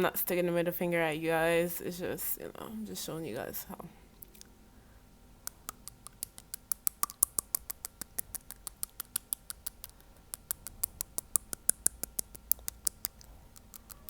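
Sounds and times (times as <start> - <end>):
fingernail tapping on teeth: 5.5 - 14.0.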